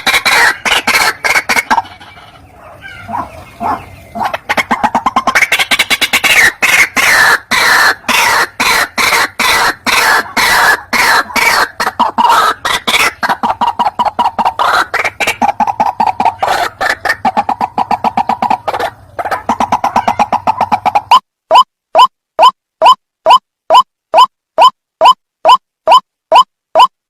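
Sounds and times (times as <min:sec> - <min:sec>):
waterhen harsh calls: 0:00.0 - 0:23.0.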